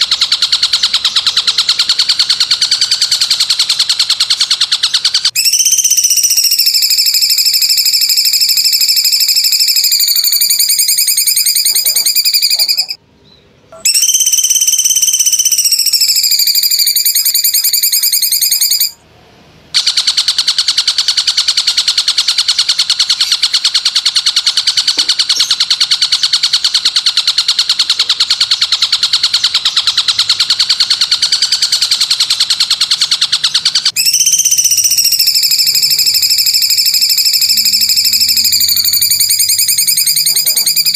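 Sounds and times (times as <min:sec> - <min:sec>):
pulsing high buzzing trill: 0:34.0 - 0:40.9.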